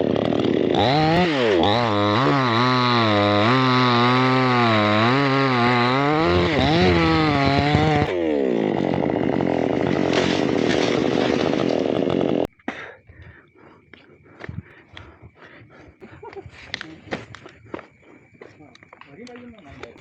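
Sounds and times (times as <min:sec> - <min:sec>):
chainsaw cutting wood: 0:00.0 - 0:12.5
rough low sawing noise: 0:00.0 - 0:12.5.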